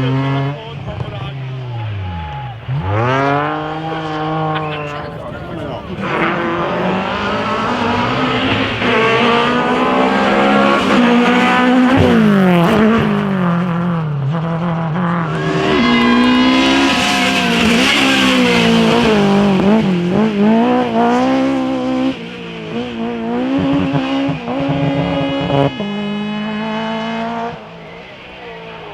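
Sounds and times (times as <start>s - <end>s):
car engine revving hard: 0.0s - 28.9s
tyres squealing: 0.7s - 12.2s, 15.2s - 20.6s.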